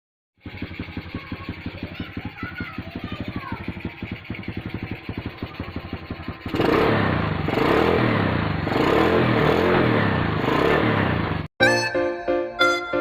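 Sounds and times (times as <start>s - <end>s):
motorcycle engine revving: 0.4s - 11.5s.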